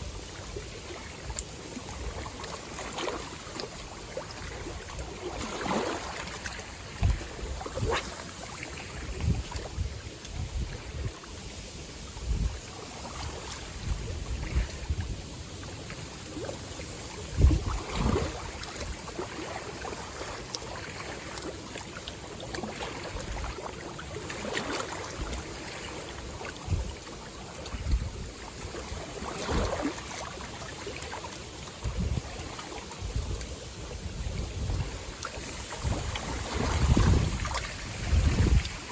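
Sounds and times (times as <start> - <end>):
waves lapping on shore: 0.0 - 38.9
wind buffeting microphone: 6.7 - 8.1, 8.8 - 11.2, 12.1 - 15.3, 17.3 - 18.6, 27.7 - 28.4, 31.8 - 32.4, 33.0 - 38.9.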